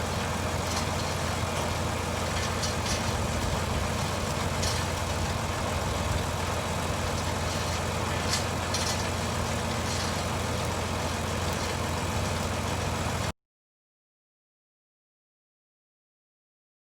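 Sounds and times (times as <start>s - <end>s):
farm machinery engine idling: 0.0s - 13.3s.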